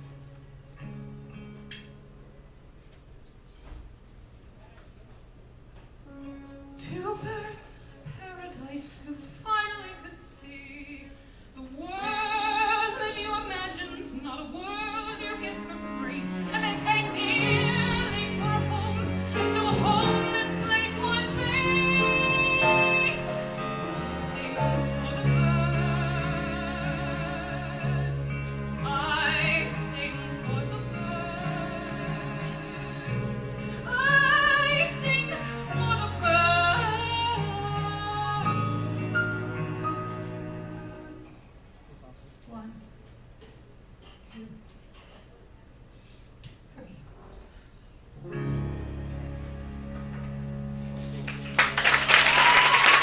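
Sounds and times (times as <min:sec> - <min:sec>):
quiet musical accompaniment: 0:00.0 - 0:44.0, 0:46.6 - 0:53.0
woman singing with vibrato: 0:06.8 - 0:41.4
piano: 0:11.8 - 0:41.4, 0:48.2 - 0:53.0
strings: 0:12.0 - 0:41.4, 0:48.2 - 0:53.0
bass: 0:15.2 - 0:41.3, 0:48.2 - 0:53.0.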